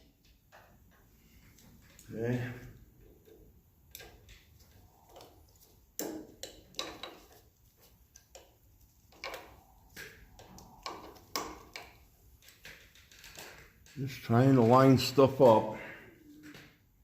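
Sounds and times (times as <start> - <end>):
screws and metal plate clicking: 3.2 - 14.4.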